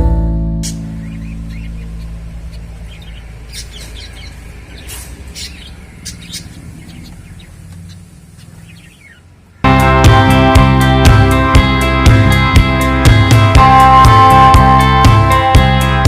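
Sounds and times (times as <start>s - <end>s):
finches chirping: 0.6s - 9.7s.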